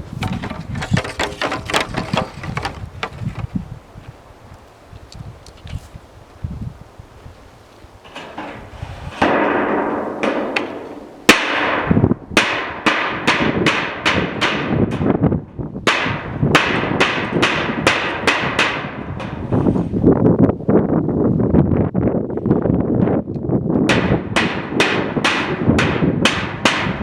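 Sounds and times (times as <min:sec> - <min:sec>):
hammer on steel roofing: 0:08.1 - 0:19.8, 0:23.9 - 0:27.0.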